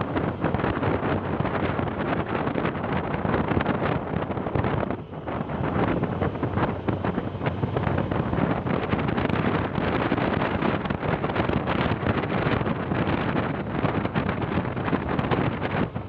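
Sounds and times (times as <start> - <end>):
vehicle engine running: 0.0 - 16.0
wind buffeting microphone: 0.0 - 16.0.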